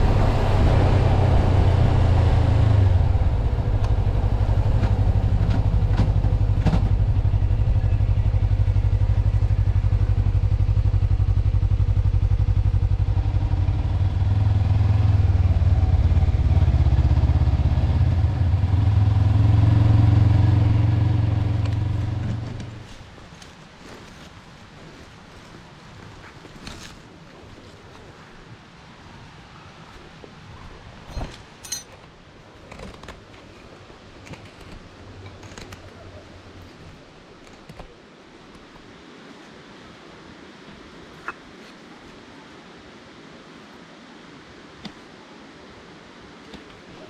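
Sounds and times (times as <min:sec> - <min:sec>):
motorcycle engine running: 0:02.8 - 0:22.8.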